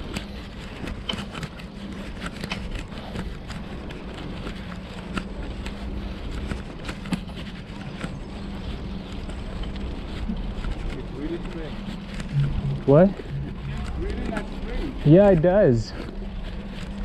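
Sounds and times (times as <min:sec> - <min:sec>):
bicycle tyre noise: 0:00.0 - 0:17.0
steady low hum: 0:00.0 - 0:17.0
wind rumbling on microphone: 0:01.8 - 0:15.1.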